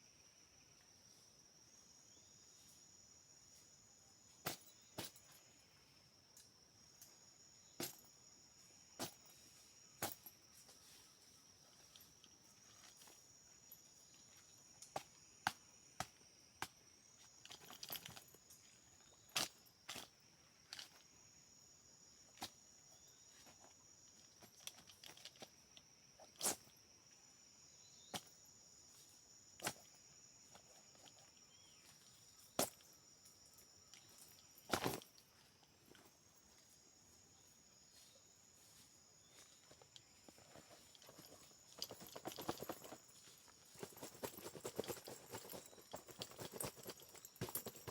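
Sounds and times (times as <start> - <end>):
high insect trill: 0.0 - 47.9
insect chorus: 0.0 - 47.9.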